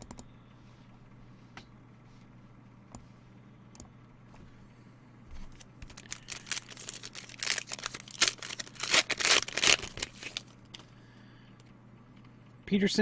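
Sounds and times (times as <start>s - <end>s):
card pack wrapper tearing: 5.5s - 10.5s.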